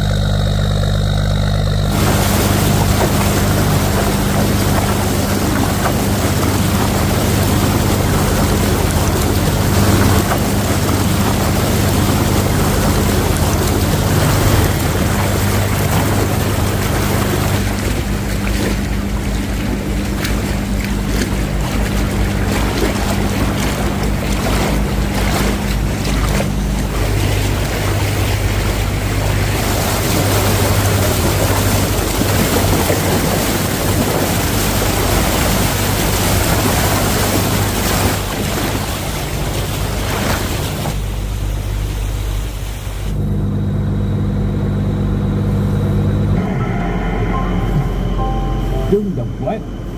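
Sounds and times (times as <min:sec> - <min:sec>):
waves slapping: 0:00.0 - 0:43.2
water splashing against hull: 0:00.0 - 0:43.3
small boat engine running: 0:00.0 - 0:49.9.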